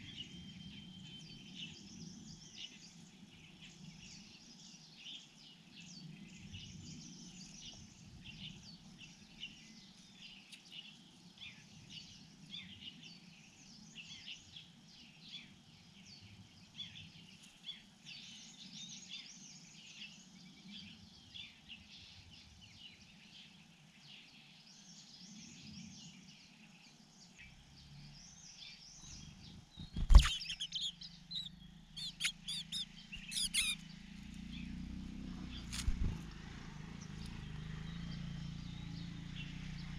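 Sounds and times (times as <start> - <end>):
birds chirping: 0.0 - 39.9
sharp chirps and clicks: 29.8 - 33.9.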